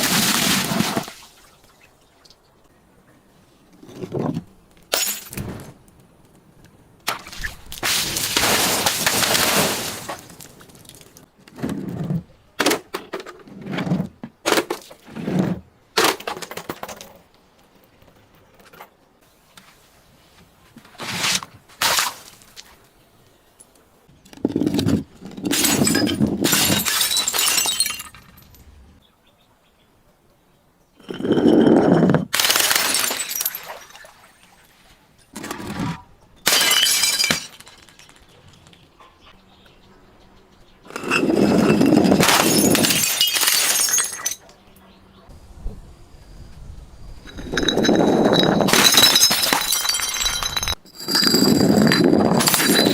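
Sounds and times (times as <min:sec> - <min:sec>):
glass being crushed and shattering: 0:04.9 - 0:05.4, 0:25.4 - 0:28.6, 0:31.0 - 0:34.2, 0:36.4 - 0:38.2, 0:40.9 - 0:44.4, 0:47.3 - 0:52.9.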